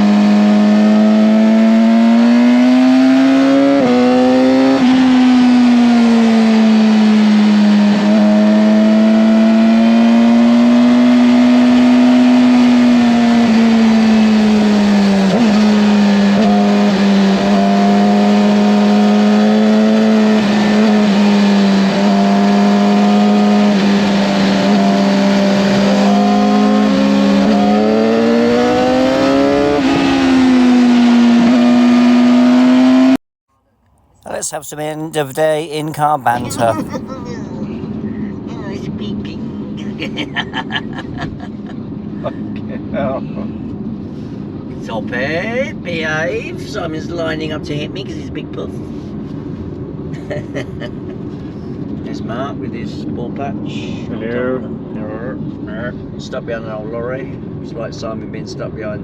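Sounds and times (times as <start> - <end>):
race motorcycle engine revving: 0.0 - 33.2.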